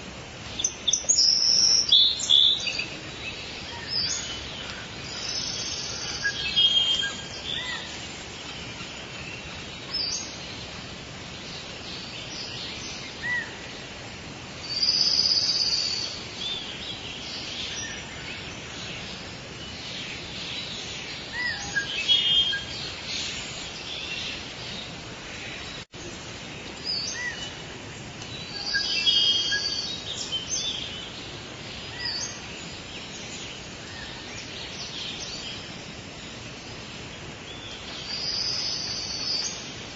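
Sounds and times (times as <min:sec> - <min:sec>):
birds chirping and trilling: 0:00.0 - 0:39.9
steady background hiss: 0:00.0 - 0:39.9.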